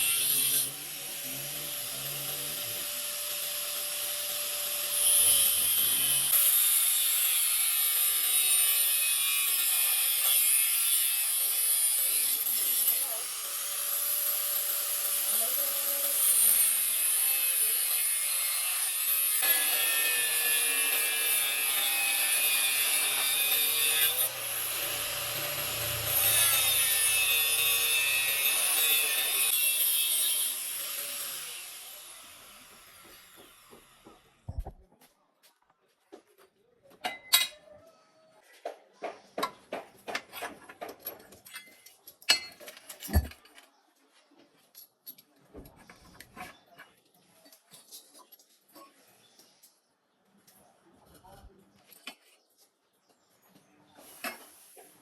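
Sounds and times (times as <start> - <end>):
power tool grinding: 0.0 - 34.2.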